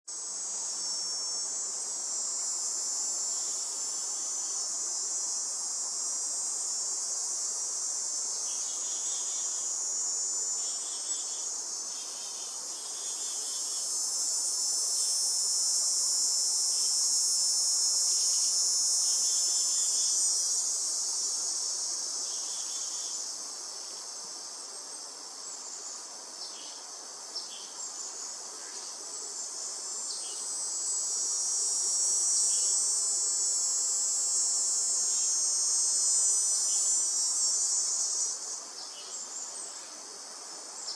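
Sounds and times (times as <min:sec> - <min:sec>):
insects trilling: 0:00.1 - 0:40.9.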